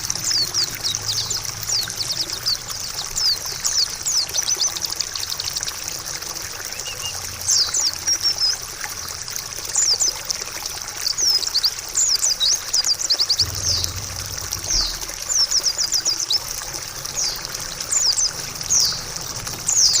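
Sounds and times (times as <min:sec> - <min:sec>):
trickling water: 0:00.0 - 0:20.0
bird singing high chirps: 0:06.7 - 0:08.5, 0:12.9 - 0:16.4.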